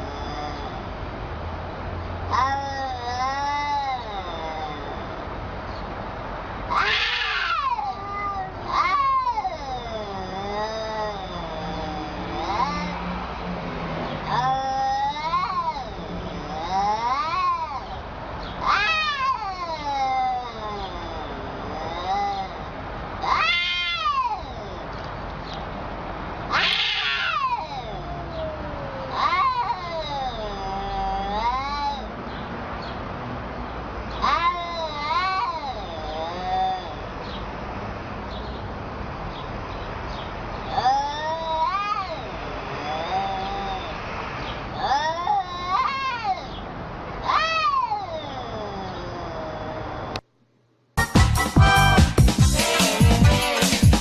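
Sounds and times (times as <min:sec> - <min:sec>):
cat yowling: 0:00.0 - 0:00.9, 0:02.3 - 0:05.2, 0:06.7 - 0:13.3, 0:14.0 - 0:18.0, 0:18.6 - 0:25.0, 0:26.5 - 0:32.2, 0:34.1 - 0:37.3, 0:40.6 - 0:44.0, 0:44.7 - 0:50.2.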